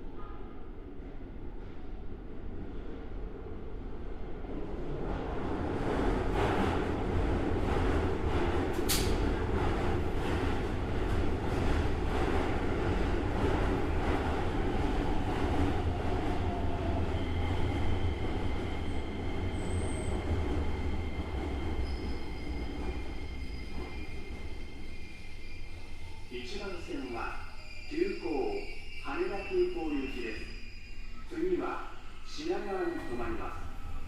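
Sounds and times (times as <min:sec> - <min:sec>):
train rumbling while braking: 0:00.0 - 0:34.0
high whines from slowing train: 0:08.6 - 0:34.0.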